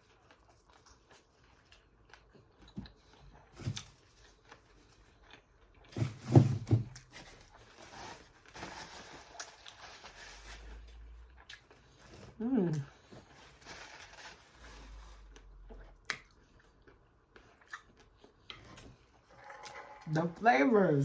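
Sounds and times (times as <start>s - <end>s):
chewing and lip-smacking: 0.0s - 5.9s, 10.7s - 13.6s, 15.3s - 20.0s.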